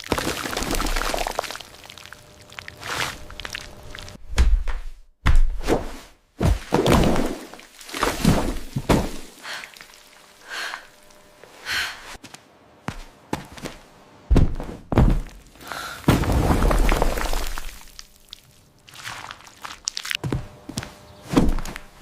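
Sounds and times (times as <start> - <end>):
dull thunks and knocks: 14.3 - 15.4.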